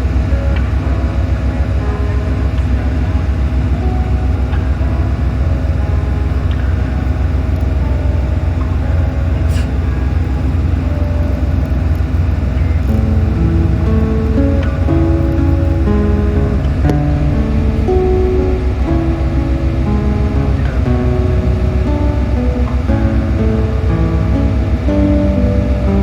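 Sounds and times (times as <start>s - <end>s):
boat engine rumble: 0.0s - 26.0s
water noise: 0.0s - 26.0s.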